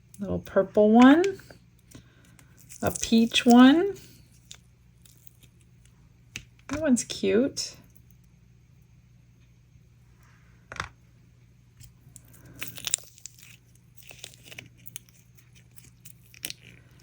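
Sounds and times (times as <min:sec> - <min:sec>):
silicone mold crackling and tearing: 0:01.8 - 0:06.7, 0:11.8 - 0:17.0.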